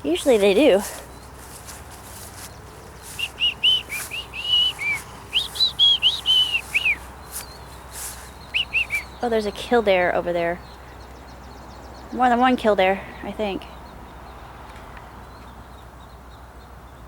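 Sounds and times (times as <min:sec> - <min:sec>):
high whistled notes: 0:03.1 - 0:07.6, 0:08.6 - 0:09.2.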